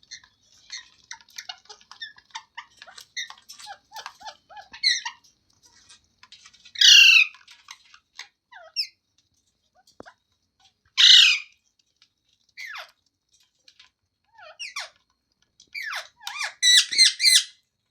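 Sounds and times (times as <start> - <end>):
parrot chattering: 0.1 - 5.2, 6.8 - 7.4, 11.0 - 11.5, 15.8 - 17.6
parrot squawk: 0.7 - 5.2, 6.8 - 7.4, 11.0 - 11.5, 15.8 - 17.6.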